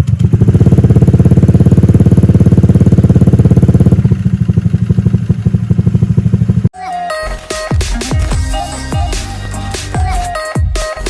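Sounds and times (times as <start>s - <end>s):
scooter engine idling: 0.0s - 6.7s.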